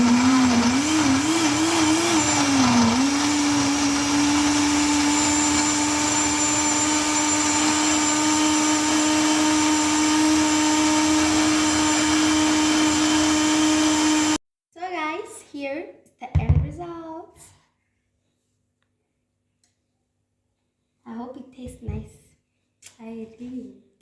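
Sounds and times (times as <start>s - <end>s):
blender crushing ice: 0.0s - 14.4s.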